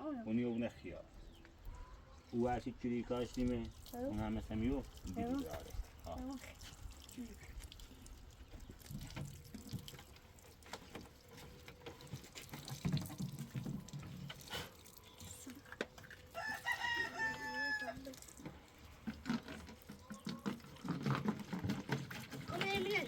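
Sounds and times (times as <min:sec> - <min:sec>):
rooster crowing: 0:16.3 - 0:18.0.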